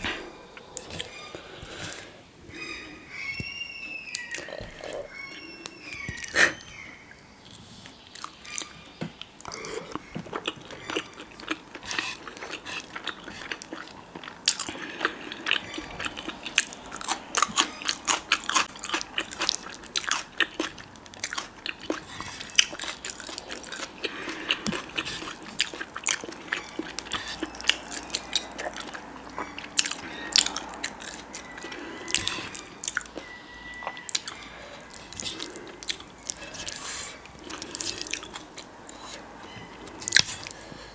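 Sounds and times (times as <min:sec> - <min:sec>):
person biting and chewing: 0:08.2 - 0:33.3, 0:33.9 - 0:39.2.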